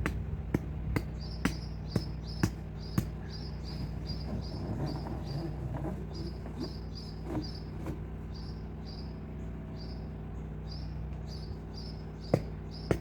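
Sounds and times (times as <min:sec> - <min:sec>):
sharp knocks: 0:00.0 - 0:03.3, 0:12.3 - 0:13.0
steady low hum: 0:00.0 - 0:13.0.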